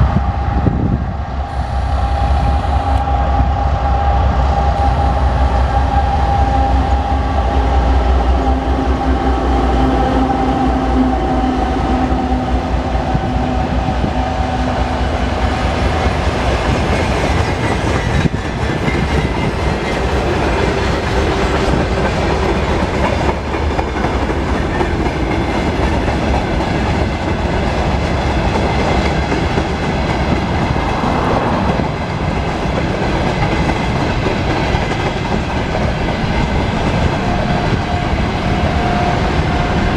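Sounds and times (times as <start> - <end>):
diesel locomotive drone and whine: 0.0 - 39.9.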